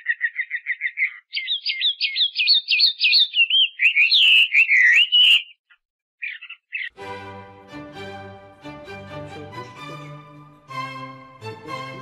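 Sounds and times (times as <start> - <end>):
songbird singing: 0.0 - 7.0.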